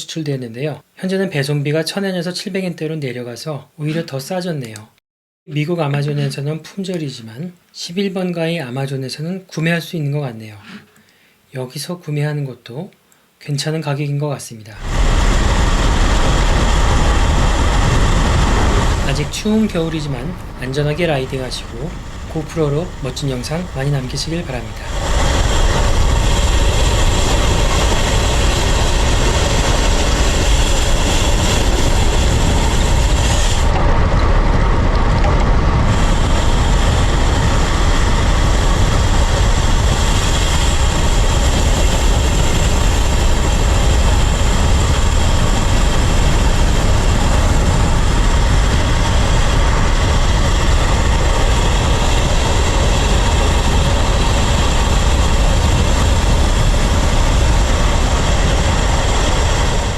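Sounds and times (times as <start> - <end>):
bicycle rolling noise: 14.8 - 59.9
wind buffeting microphone: 14.8 - 59.9.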